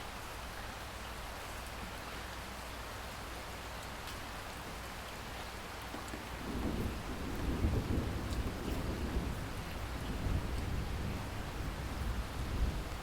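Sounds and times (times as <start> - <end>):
steady rain falling: 0.0 - 13.0
rumble of thunder: 6.3 - 13.0.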